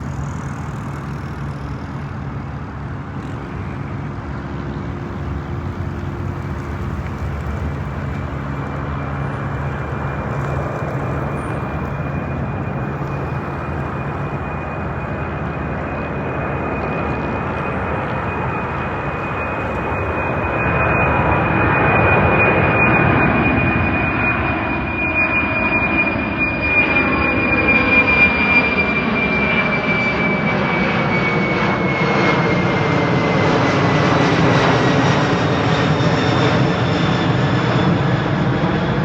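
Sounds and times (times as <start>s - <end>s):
jet engines roaring: 0.0s - 39.0s
thin high whine: 5.0s - 24.2s.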